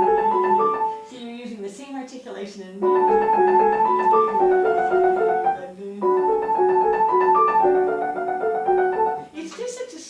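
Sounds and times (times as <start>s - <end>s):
piano playing alternating notes: 0.0s - 1.1s, 2.8s - 9.4s.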